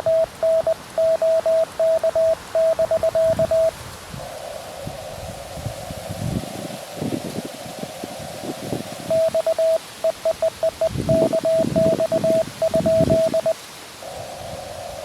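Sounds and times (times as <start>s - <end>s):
morse code sidetone: 0.0s - 3.7s, 9.1s - 13.6s
radio receiver hiss: 0.0s - 15.0s
wind rumble on microphone: 2.1s - 9.7s, 10.8s - 15.0s.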